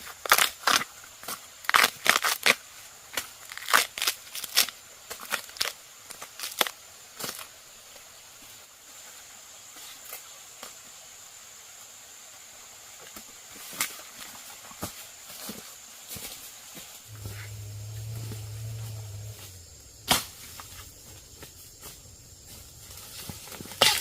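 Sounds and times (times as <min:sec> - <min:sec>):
faint high hiss: 0:06.0 - 0:24.0.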